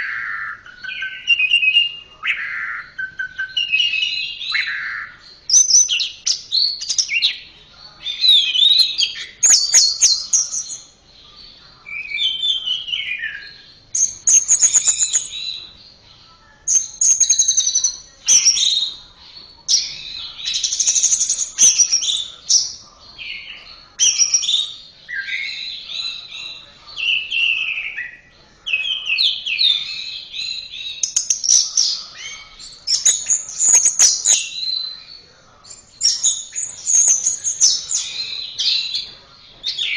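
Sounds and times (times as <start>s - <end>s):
bird singing whistled phrases: 0.0s - 7.4s, 8.1s - 10.9s, 11.9s - 15.7s, 24.0s - 39.0s.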